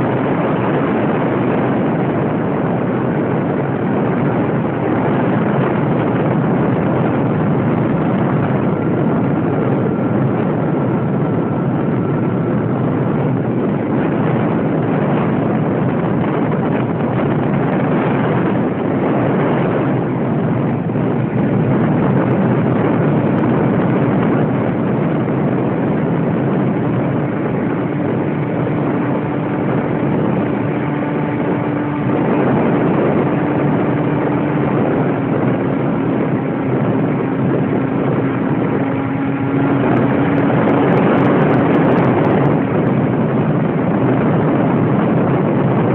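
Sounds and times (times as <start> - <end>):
faint whine: 0.0 - 45.9
model airplane propeller rushing: 0.0 - 45.9.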